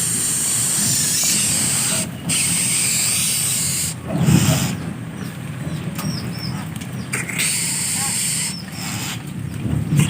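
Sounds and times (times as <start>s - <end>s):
loud steady hissing: 7.2s - 9.4s.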